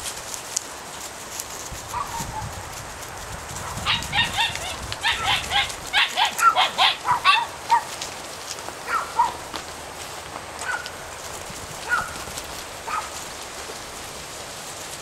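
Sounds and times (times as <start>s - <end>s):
puppy yapping: 3.6s - 8.0s, 8.8s - 9.4s, 10.6s - 10.9s, 11.8s - 13.2s.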